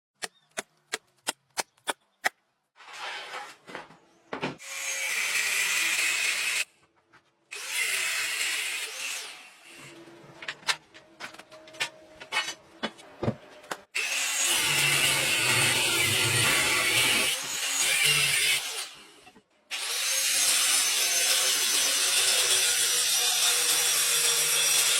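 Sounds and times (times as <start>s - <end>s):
power tool grinding steel: 14.0s - 24.9s.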